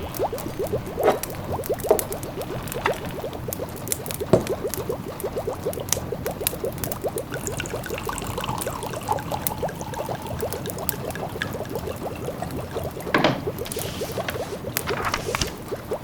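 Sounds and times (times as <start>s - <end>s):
wood fire crackling: 0.0s - 7.2s, 9.4s - 16.0s
pot of food bubbling: 0.0s - 16.0s.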